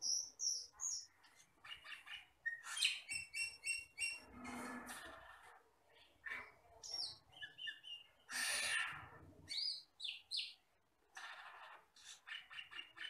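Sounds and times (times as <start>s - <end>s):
bird singing whistled notes: 2.5s - 4.2s.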